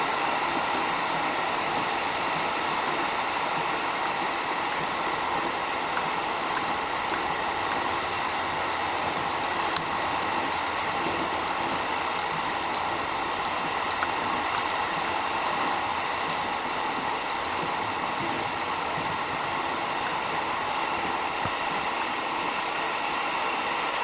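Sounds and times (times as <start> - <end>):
electric train running: 0.0 - 24.0
sharp clicks: 0.2 - 18.5.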